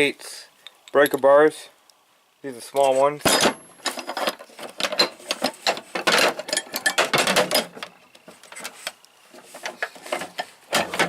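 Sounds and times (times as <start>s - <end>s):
metal hand tools clinking: 6.1s - 7.7s.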